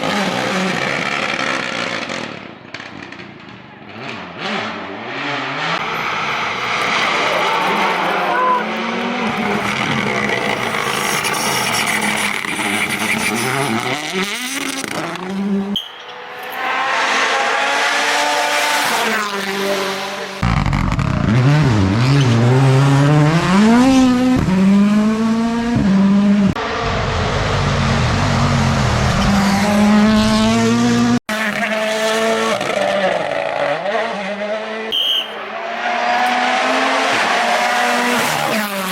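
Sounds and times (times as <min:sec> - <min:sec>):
rally car engines revving: 0:00.0 - 0:38.9.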